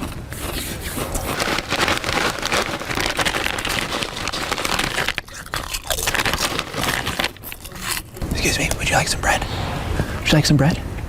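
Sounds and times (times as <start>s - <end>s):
chips crunching: 0.0s - 8.8s
snack bag rustling: 0.0s - 8.8s.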